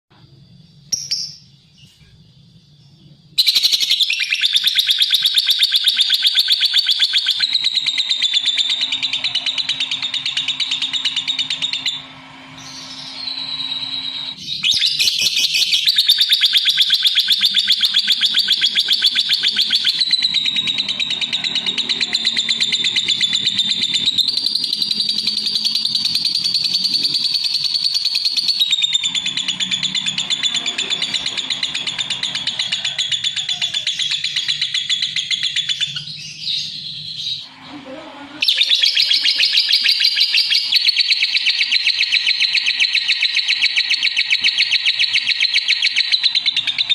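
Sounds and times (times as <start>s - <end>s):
bird chirp: 0.2s - 46.9s
lovebird shrill chattering: 38.4s - 46.9s.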